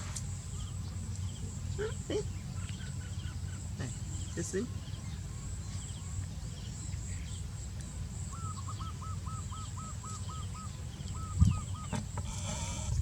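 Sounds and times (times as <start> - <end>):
bird chirping: 8.3 - 13.0.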